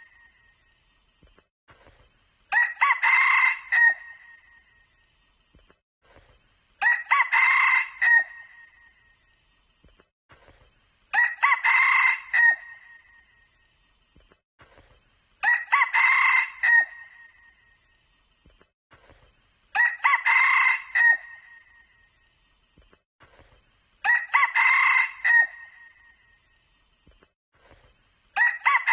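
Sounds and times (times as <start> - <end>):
rooster crowing: 2.5 - 4.2, 6.8 - 8.5, 11.1 - 13.0, 15.4 - 17.2, 19.8 - 21.6, 24.0 - 26.0, 28.4 - 28.9.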